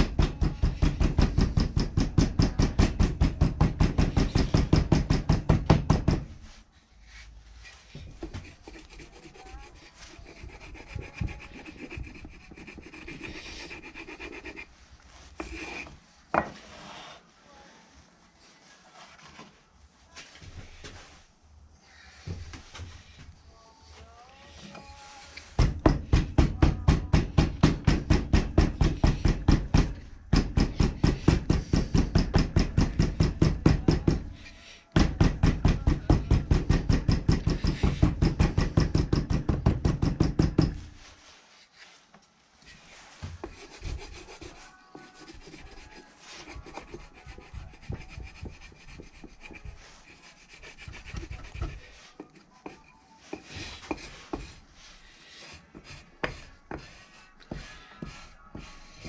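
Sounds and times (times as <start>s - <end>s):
scraping and handling sounds: 6.3s - 25.6s, 40.7s - 59.0s
rapid rubbing strokes: 6.4s - 17.3s, 42.7s - 59.0s.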